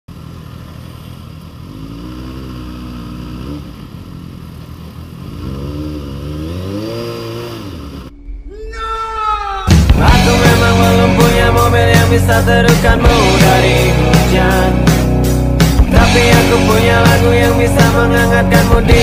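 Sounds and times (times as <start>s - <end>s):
motorcycle engine running: 0.1s - 8.1s, 9.9s - 19.0s
wind and road noise: 0.1s - 8.5s.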